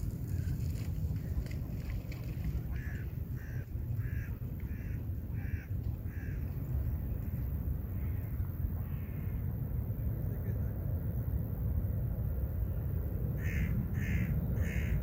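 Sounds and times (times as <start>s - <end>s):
steady low rumble: 0.0s - 15.0s
bird harsh calls: 13.4s - 15.0s.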